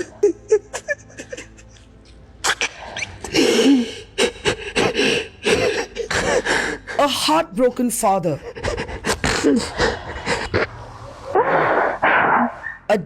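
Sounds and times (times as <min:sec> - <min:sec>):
person sobbing: 0:00.0 - 0:07.3, 0:08.3 - 0:10.8.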